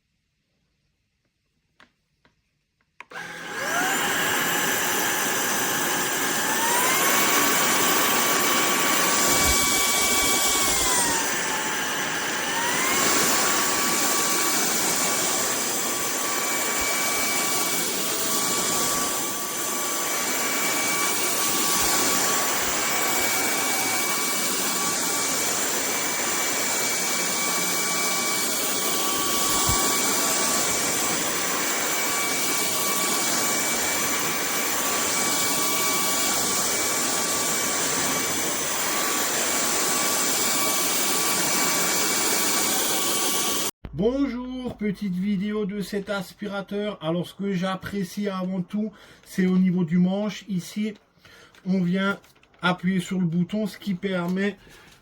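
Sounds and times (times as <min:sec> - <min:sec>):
vacuum cleaner motor whine: 0:03.0 - 0:43.8.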